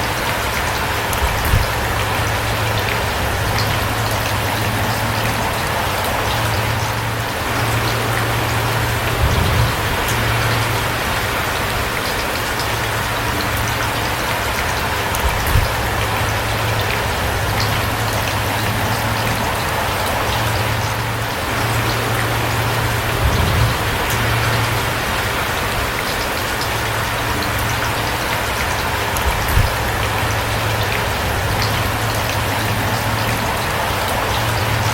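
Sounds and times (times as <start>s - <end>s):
steady rain falling: 0.0s - 34.9s
low hum: 0.3s - 34.9s
soft low thumps: 1.2s - 2.6s, 7.7s - 10.8s, 15.2s - 16.4s, 29.2s - 30.6s.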